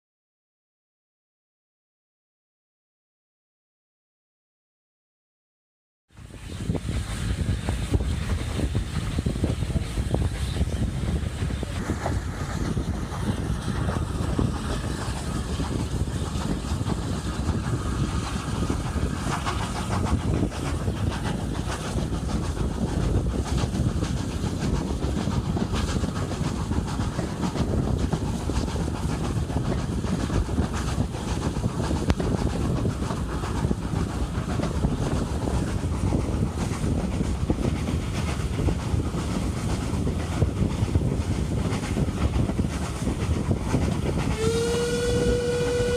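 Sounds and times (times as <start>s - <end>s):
steam locomotive exhaust: 6.1s - 45.9s
steam hiss: 6.2s - 45.9s
wheels clattering on rails: 6.5s - 45.2s.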